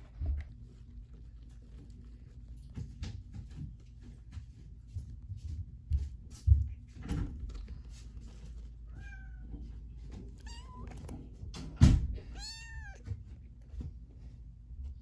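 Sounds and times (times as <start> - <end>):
kitten meowing: 10.4 - 11.0, 12.2 - 13.1.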